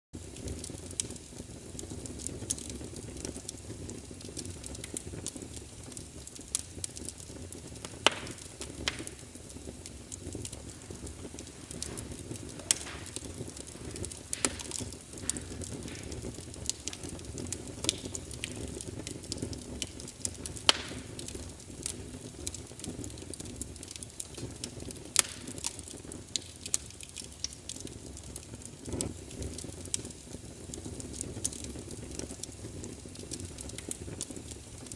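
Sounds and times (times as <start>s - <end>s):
low fire rumble: 0.2s - 34.9s
wood fire crackling: 0.2s - 34.9s
sharp loud pops: 8.1s - 9.2s, 11.7s - 16.2s.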